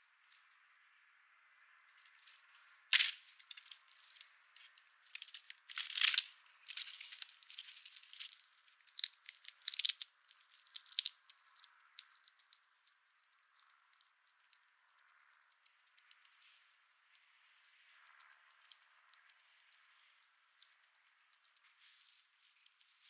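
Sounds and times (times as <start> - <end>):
squirrel rummaging in seed: 1.9 - 14.6, 20.6 - 23.0.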